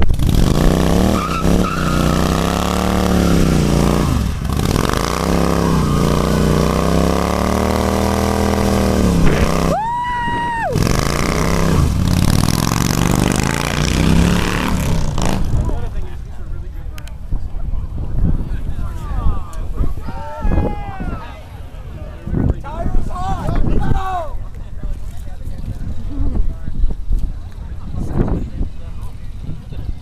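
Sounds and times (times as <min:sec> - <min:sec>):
motorcycle engine revving: 0:00.0 - 0:09.8, 0:10.7 - 0:15.9.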